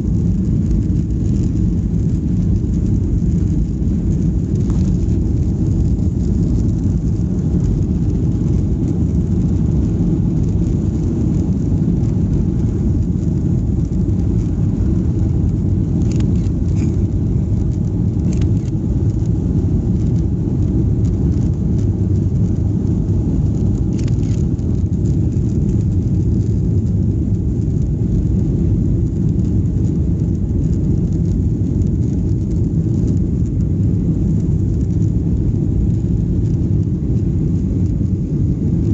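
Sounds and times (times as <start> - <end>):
airplane cabin rumble: 0.0 - 38.9.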